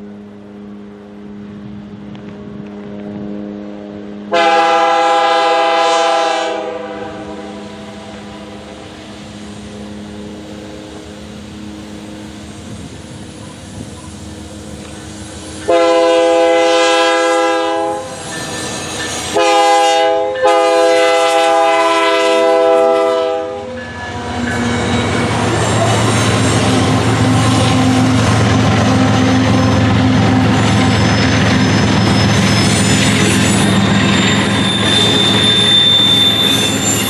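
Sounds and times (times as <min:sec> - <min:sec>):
train rolling noise: 0:00.0 - 0:37.0
diesel locomotive air horn: 0:03.0 - 0:11.8, 0:14.8 - 0:31.1, 0:32.2 - 0:37.0
fainter horn: 0:04.3 - 0:08.8, 0:15.6 - 0:18.2, 0:19.3 - 0:24.6
locomotive engine rumble: 0:06.7 - 0:37.0.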